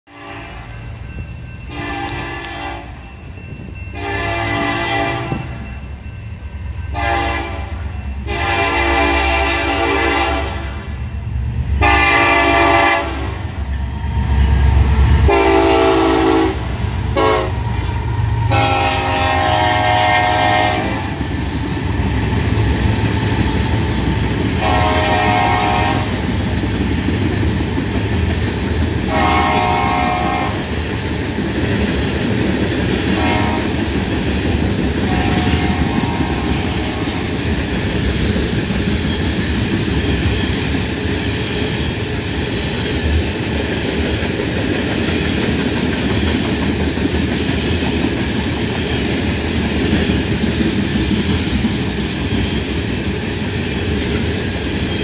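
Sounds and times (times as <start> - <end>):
train air horn blasts: 0.1 - 0.7, 1.7 - 3.0, 3.9 - 5.6, 6.9 - 10.9, 11.8 - 13.6, 15.2 - 21.2, 24.6 - 26.2, 29.1 - 30.7, 33.1 - 33.8, 35.0 - 37.2
locomotive engines rumbling: 0.1 - 55.0
train wheels clattering on rails: 10.9 - 55.0.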